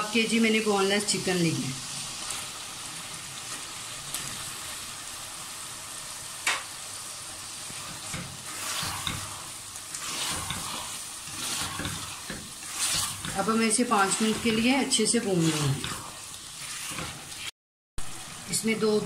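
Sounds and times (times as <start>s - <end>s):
chicken sizzling in oil: 0.0s - 19.0s
spatula scraping pot: 7.7s - 17.5s.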